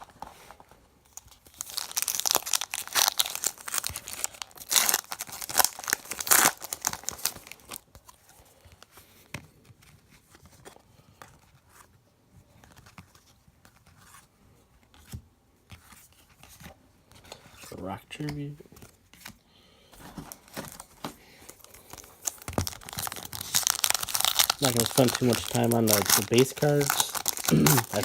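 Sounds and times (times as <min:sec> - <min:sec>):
wrapper tearing and crinkling: 0:01.1 - 0:07.8, 0:20.0 - 0:28.0.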